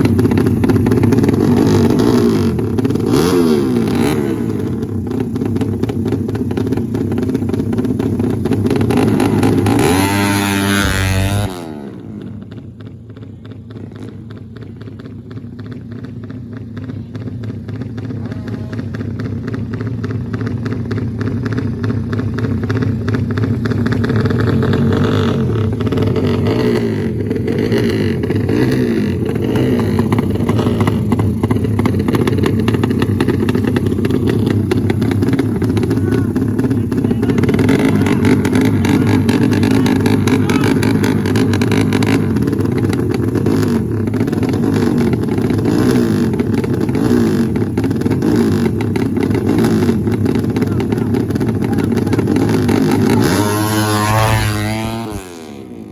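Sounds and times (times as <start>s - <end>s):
motorcycle engines running: 0.0s - 55.9s
crowd voices: 29.2s - 42.6s, 50.4s - 55.4s.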